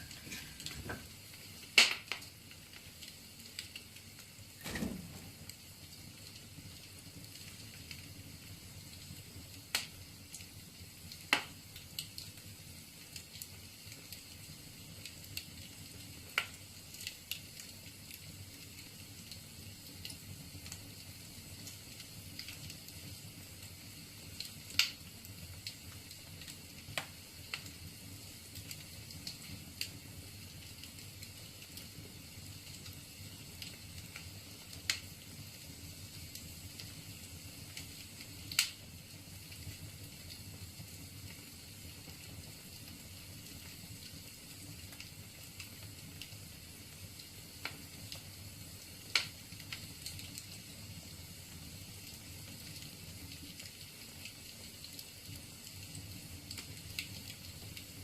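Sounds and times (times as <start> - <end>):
sharp pops from burning logs: 0.0 - 50.8, 51.5 - 58.0
wood fire crackling: 0.0 - 58.0.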